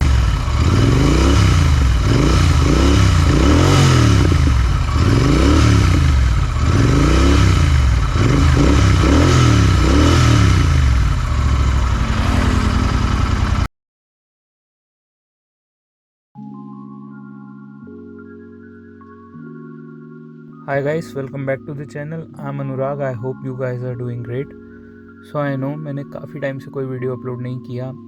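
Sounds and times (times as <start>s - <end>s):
motorcycle engine revving: 0.0s - 13.7s.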